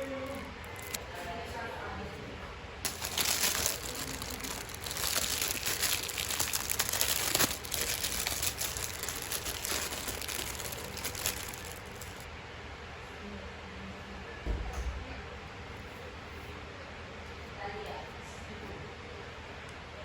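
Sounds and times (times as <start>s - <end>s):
packaging crinkling: 0.0s - 1.0s, 2.9s - 12.3s.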